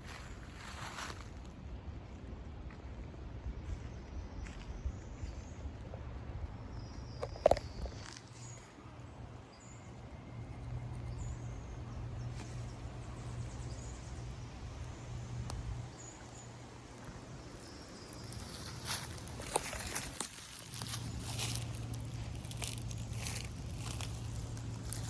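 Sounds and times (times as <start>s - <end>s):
low steady hum: 0.0s - 25.0s
crackling and rustling: 16.8s - 25.0s.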